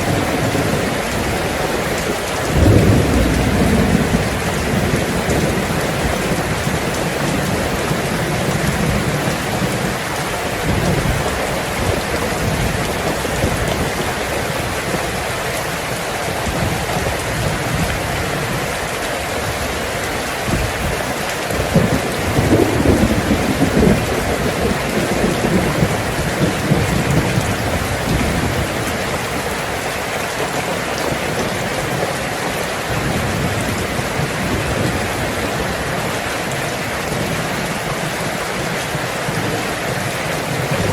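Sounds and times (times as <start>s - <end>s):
thunder rumbling: 0.0s - 14.9s, 20.5s - 29.5s, 32.9s - 40.9s
heavy rain on a tin roof: 0.0s - 40.9s.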